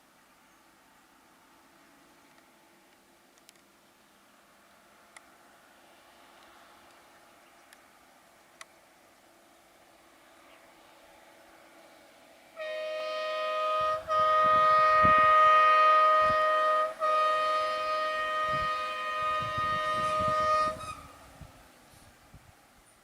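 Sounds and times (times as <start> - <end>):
vehicle horn blasts: 12.6 - 21.2.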